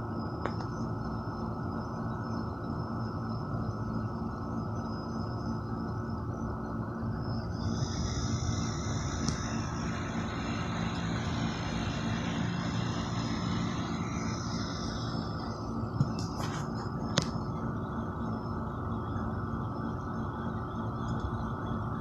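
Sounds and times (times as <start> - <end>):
traffic rumble: 7.4 - 19.2
vehicle tyre hiss passing: 7.6 - 15.8.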